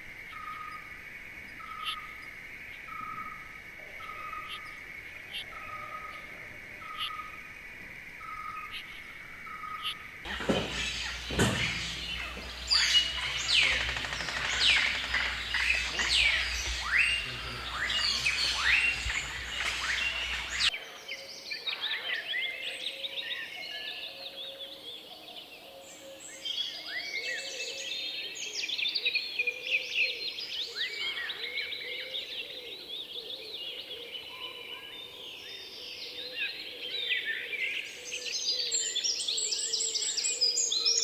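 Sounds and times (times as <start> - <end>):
chorus of whistled bird calls: 9.5 - 41.0
rapid bird chirps: 9.8 - 20.7
high insect-like hum: 10.3 - 20.7.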